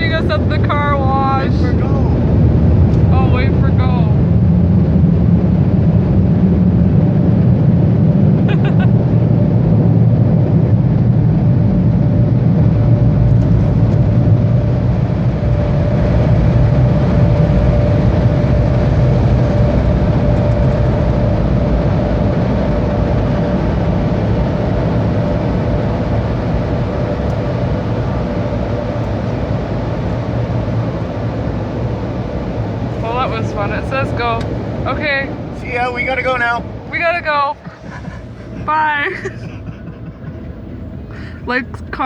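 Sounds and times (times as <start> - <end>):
car wash air blowers: 19.8 - 42.0.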